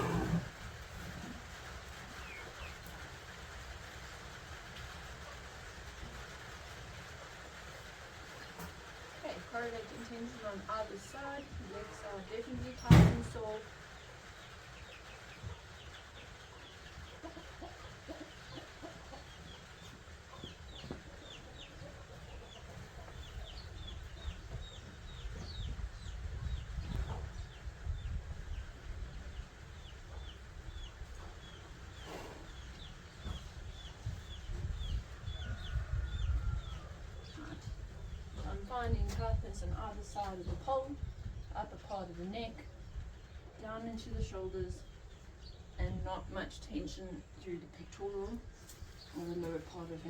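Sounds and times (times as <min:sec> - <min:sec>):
birds chirping: 0:00.0 - 0:03.0, 0:08.4 - 0:50.0.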